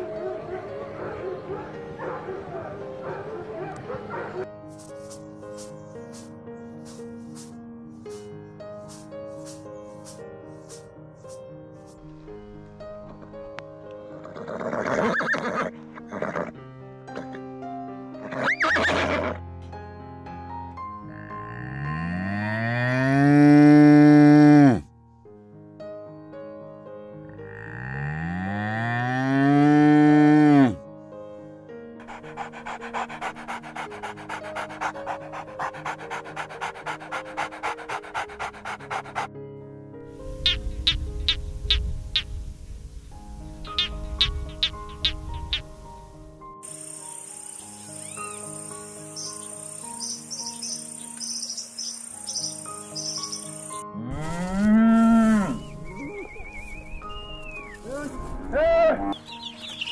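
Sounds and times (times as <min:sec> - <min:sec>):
soft background music: 0:00.0 - 0:59.9
animal panting: 0:00.4 - 0:07.5, 0:32.0 - 0:39.3, 0:43.7 - 0:45.9, 0:49.0 - 0:53.8
cow mooing: 0:21.0 - 0:24.9, 0:27.4 - 0:30.8, 0:54.0 - 0:55.7
crickets chirping: 0:40.2 - 0:53.8.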